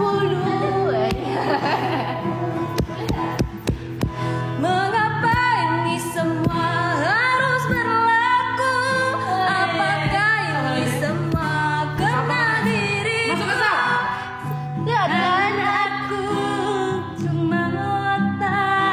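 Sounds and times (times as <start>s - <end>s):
woman singing: 0.0s - 18.9s
backing music: 0.8s - 4.6s.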